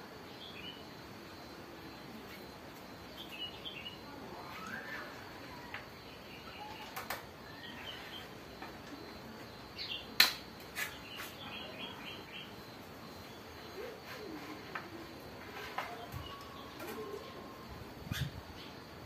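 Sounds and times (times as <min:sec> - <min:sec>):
songbirds chirping: 0:00.0 - 0:19.0.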